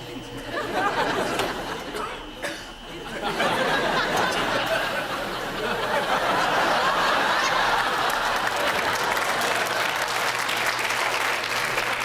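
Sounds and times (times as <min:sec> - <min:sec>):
audience laughing: 0:00.4 - 0:02.2, 0:02.8 - 0:10.6
audience clapping: 0:06.5 - 0:12.0.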